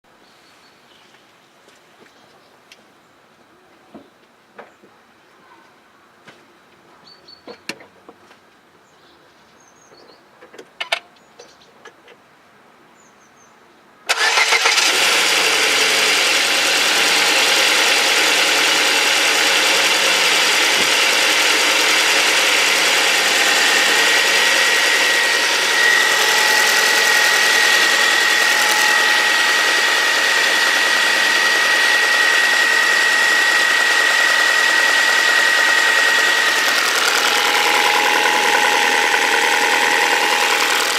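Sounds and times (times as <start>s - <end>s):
car engine starting and idling: 14.1s - 40.9s
engine tapping: 14.1s - 40.9s
fuel injector ticking: 14.1s - 40.9s.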